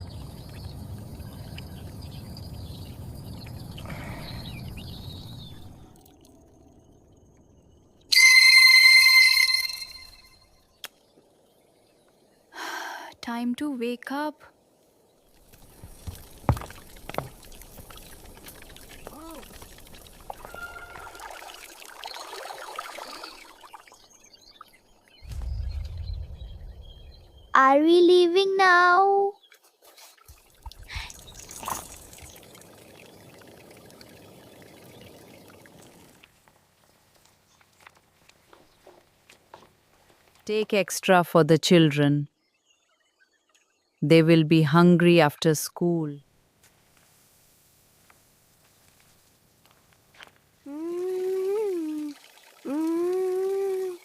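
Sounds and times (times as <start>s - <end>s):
small birds chirping: 0.0s - 8.0s, 9.0s - 21.3s
water pouring and trickling: 5.8s - 6.6s, 15.2s - 25.6s, 29.5s - 37.2s, 47.0s - 54.0s
loud steady ringing tone: 8.1s - 10.7s
low rumble: 25.2s - 27.6s.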